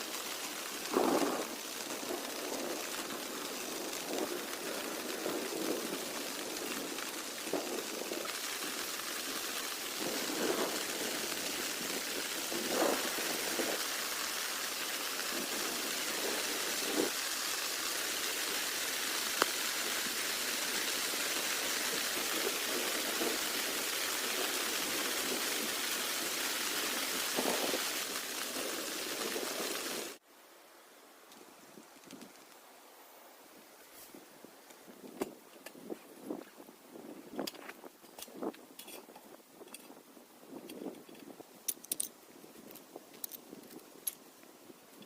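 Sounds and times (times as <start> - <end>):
heavier raindrops pattering: 0.0 - 30.2
steady rain falling: 0.0 - 45.0.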